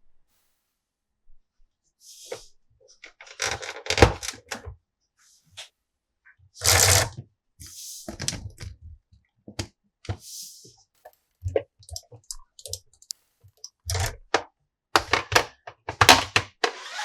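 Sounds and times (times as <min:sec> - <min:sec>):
plastic toy parts clicking: 0:11.8 - 0:14.4.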